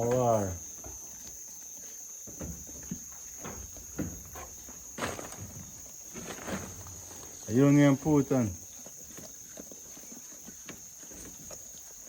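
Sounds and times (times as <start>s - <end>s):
goat hooves knocking on ground: 2.2s - 7.4s.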